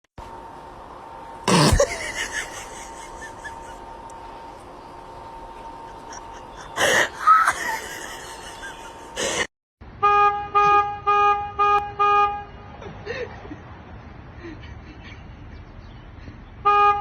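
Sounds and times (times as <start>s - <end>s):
horn tooting: 10.0s - 12.8s, 16.6s - 17.0s.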